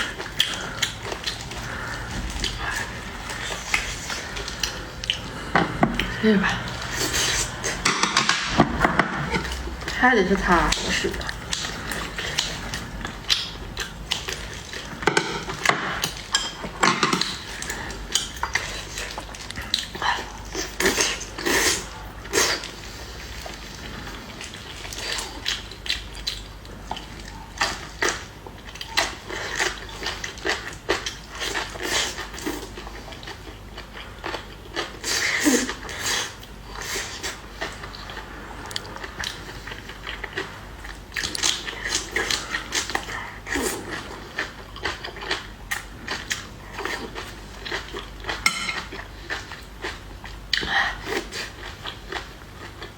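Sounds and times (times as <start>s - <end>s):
person chewing and biting: 0.0s - 9.9s, 10.7s - 52.9s
utensils clicking against dishes: 7.7s - 9.6s, 15.0s - 17.4s.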